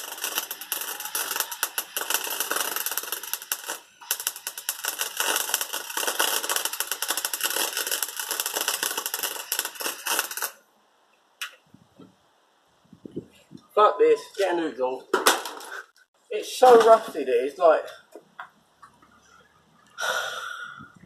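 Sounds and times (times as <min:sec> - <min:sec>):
welder arc crackling: 0:00.0 - 0:10.6.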